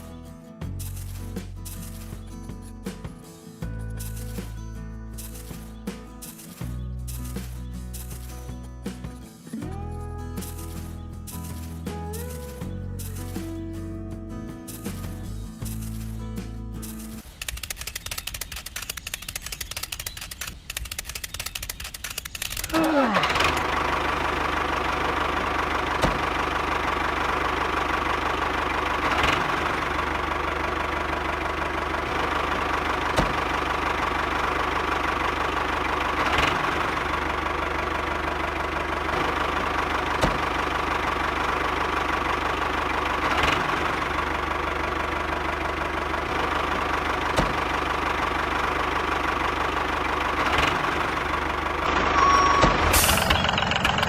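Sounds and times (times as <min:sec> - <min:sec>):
sharp click: 0:16.8 - 0:22.8.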